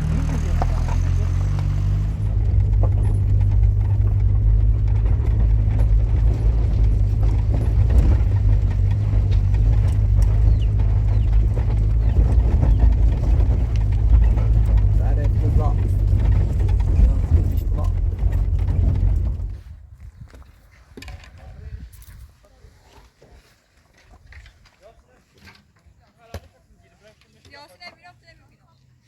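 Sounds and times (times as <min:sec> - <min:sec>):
vehicle engine rumbling: 0:00.0 - 0:22.4.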